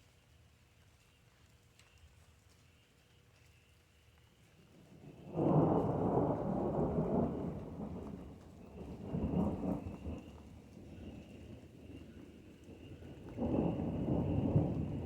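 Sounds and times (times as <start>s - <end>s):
thunder rumbling: 4.9s - 15.0s.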